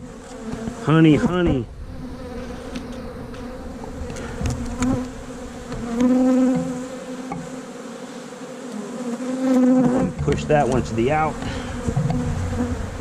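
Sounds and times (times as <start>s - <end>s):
honey bees buzzing: 0.0s - 13.0s
light knocks of hive frames: 0.3s - 0.8s, 2.3s - 7.8s, 9.5s - 12.8s.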